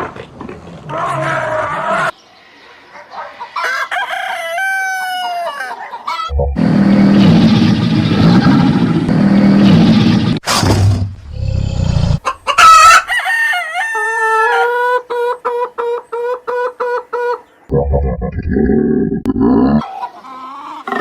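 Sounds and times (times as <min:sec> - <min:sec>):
chickens clucking: 0:00.1 - 0:06.6, 0:12.2 - 0:18.3, 0:19.2 - 0:21.0
rooster crowing: 0:03.5 - 0:06.4, 0:12.4 - 0:14.8
loud rough low rumbling: 0:06.3 - 0:12.2.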